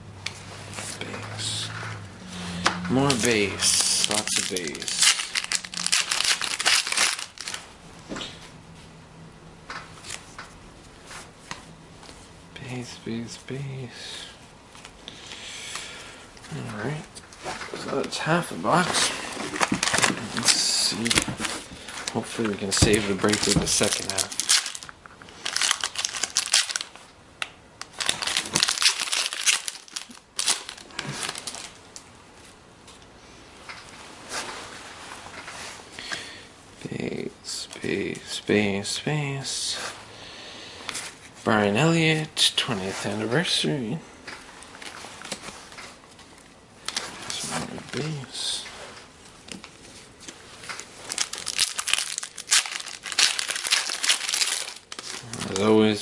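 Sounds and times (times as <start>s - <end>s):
foil wrapper crinkling: 3.1s - 7.7s, 18.8s - 27.0s, 27.8s - 31.8s, 49.5s - 56.0s.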